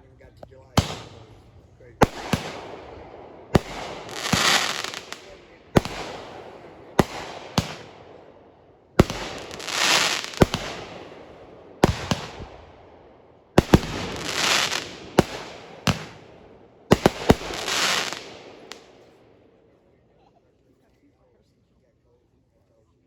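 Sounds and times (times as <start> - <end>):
firework bangs: 0.6 - 19.4
loud firework hiss: 3.6 - 7.9, 9.0 - 10.9, 13.6 - 16.2.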